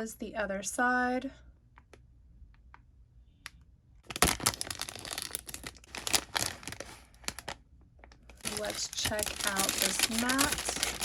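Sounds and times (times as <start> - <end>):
plastic bag crinkling and tearing: 4.0 - 11.0.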